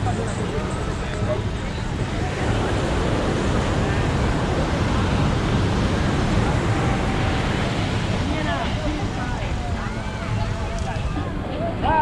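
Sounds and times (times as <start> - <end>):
ocean surf breaking on beach: 0.0 - 12.0
wind rumbling on microphone: 0.0 - 12.0.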